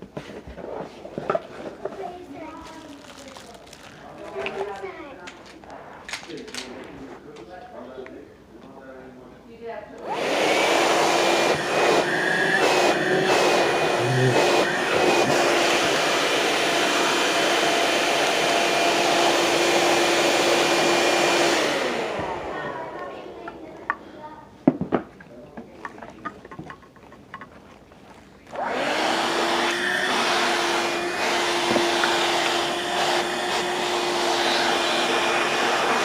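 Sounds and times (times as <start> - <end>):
handheld vacuum cleaner running: 10.0 - 24.0, 28.5 - 36.0.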